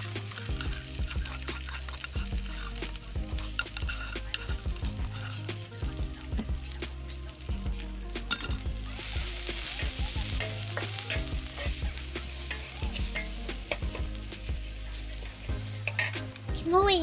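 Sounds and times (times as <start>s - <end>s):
metal spatula scraping pan: 0.0s - 5.6s, 8.3s - 14.2s, 15.8s - 16.3s
garlic sizzling in oil: 0.0s - 17.0s.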